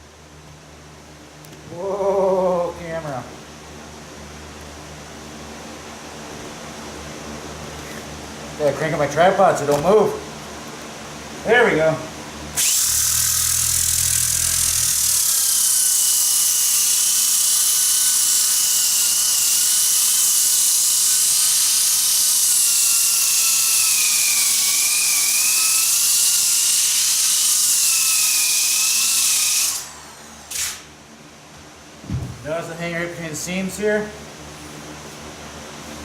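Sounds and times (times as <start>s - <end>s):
floor sander on wood: 12.6s - 30.9s.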